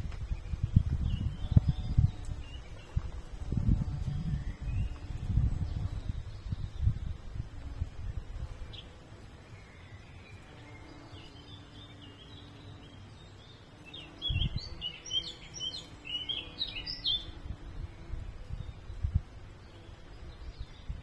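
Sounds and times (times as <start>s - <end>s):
wind on microphone: 0.0s - 9.0s, 14.1s - 15.8s, 16.6s - 21.0s
songbird chirping: 0.0s - 21.0s.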